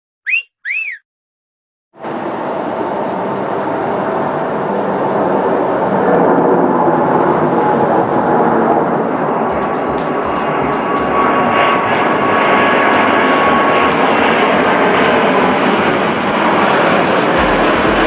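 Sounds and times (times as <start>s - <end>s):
short chirps: 0.3s - 1.0s
jet airliner rushing: 2.1s - 18.0s.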